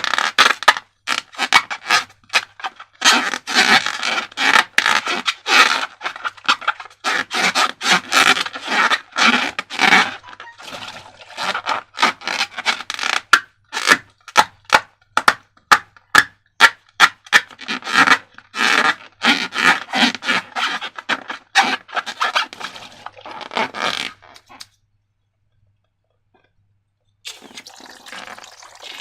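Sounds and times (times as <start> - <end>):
slime scraping and rubbing: 0.0 - 14.0, 17.0 - 24.7.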